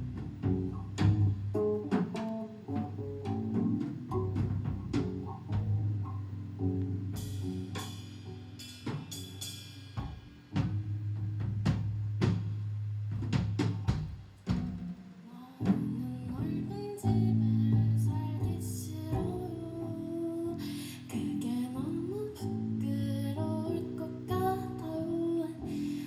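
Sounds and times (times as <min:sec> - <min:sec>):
sustained bass notes: 0:00.0 - 0:08.8, 0:15.7 - 0:25.8
drum hits: 0:10.0 - 0:15.1.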